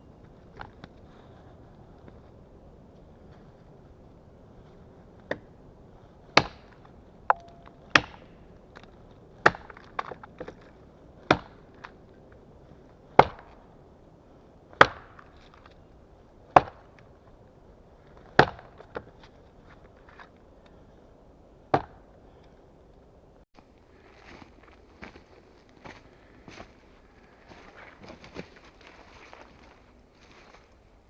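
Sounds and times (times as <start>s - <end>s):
hand axe chopping wood: 6.4s - 10.7s, 11.3s - 12.0s, 13.2s - 13.6s, 14.8s - 15.6s, 16.6s - 16.9s, 18.3s - 19.1s, 21.7s - 22.0s.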